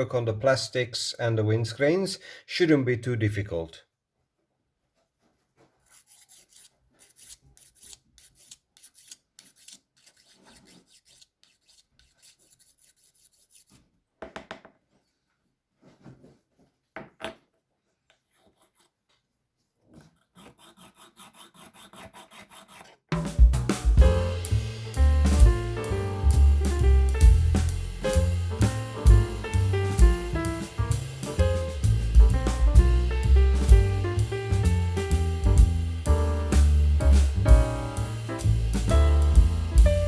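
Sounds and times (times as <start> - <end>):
hand rubbing and scraping: 4.9 - 13.9, 18.0 - 40.0
background music with drums: 23.2 - 40.0.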